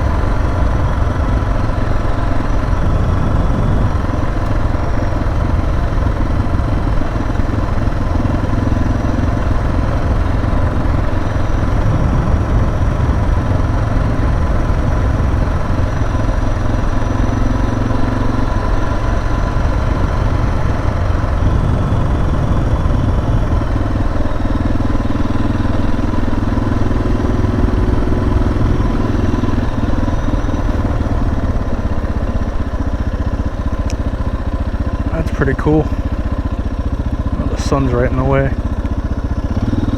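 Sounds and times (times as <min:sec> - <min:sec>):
motorcycle engine cruising: 0:00.0 - 0:39.9
wind buffeting microphone: 0:02.0 - 0:04.8, 0:11.0 - 0:15.8, 0:20.2 - 0:24.6.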